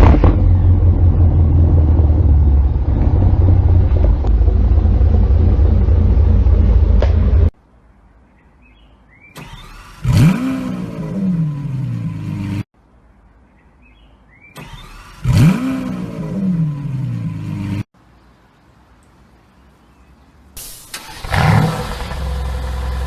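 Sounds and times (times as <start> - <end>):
car engine starting and revving: 0.0 - 7.5, 9.3 - 12.7, 14.5 - 17.9, 20.6 - 23.0.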